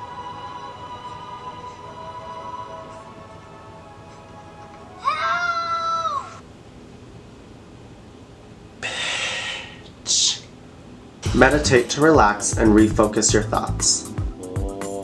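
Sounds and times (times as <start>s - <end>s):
breathy hissing: 8.8s - 9.9s.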